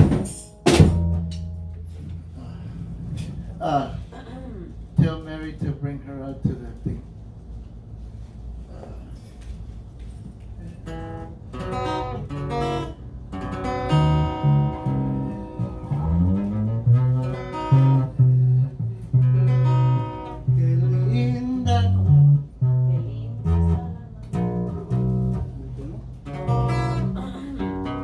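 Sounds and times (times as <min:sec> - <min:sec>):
acoustic guitar strumming chords: 0:00.0 - 0:02.4, 0:10.8 - 0:25.6, 0:26.2 - 0:28.0
low sustained bass notes: 0:00.0 - 0:06.8, 0:10.7 - 0:28.0.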